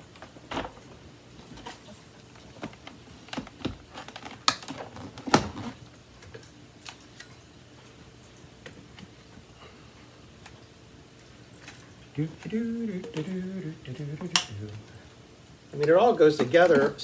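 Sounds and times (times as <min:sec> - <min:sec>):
vacuum attachments clicking: 0:14.2 - 0:14.9.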